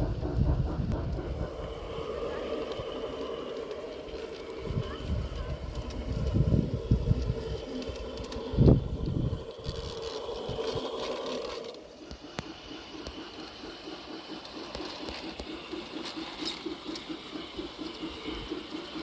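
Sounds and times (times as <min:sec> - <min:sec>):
wind buffeting microphone: 0:00.0 - 0:11.0
model train motor hum: 0:00.0 - 0:19.0.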